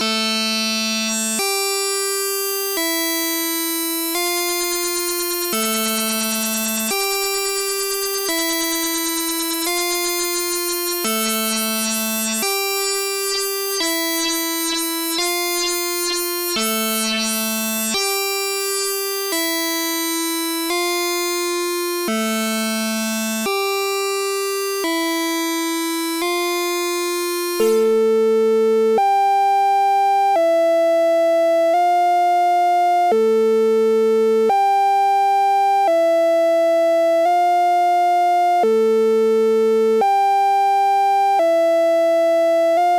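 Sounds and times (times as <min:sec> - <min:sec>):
analog synthesizer sequence: 0:00.0 - 0:28.2.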